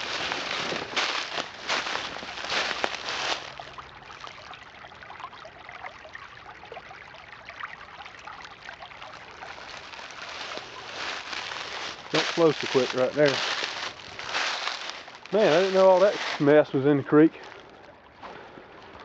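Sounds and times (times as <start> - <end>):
rustling strokes: 0.0 - 3.6, 9.5 - 16.7
creek babbling over rocks: 0.0 - 18.2.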